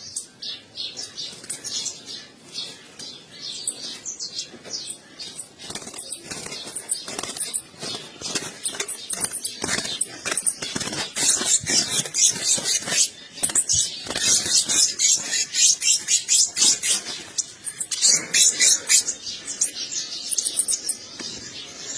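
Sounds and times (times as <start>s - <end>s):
finches calling high chips: 3.0s - 21.9s.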